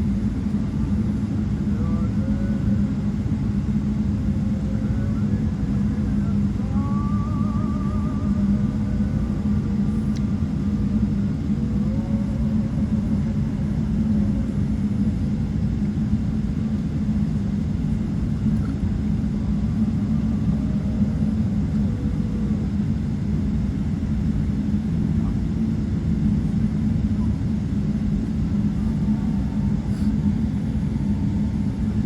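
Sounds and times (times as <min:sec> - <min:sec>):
airplane cabin rumble: 0:00.0 - 0:32.0.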